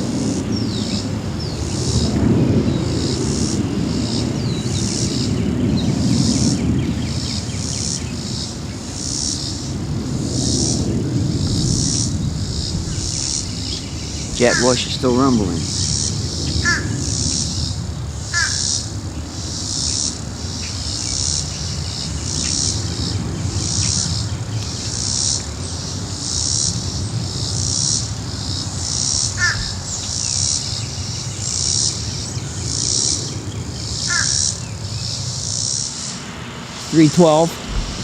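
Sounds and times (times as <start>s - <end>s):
insects buzzing: 0.0s - 38.0s
jet airliner rumble overhead: 0.0s - 38.0s
bird calls: 10.4s - 26.5s, 27.4s - 38.0s.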